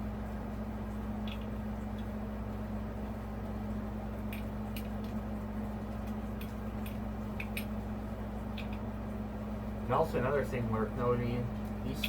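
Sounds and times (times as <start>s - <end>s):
steady low hum: 0.0s - 12.0s
clicks and rustles of wires: 0.9s - 2.2s, 4.2s - 7.8s, 8.4s - 8.9s, 11.5s - 12.0s.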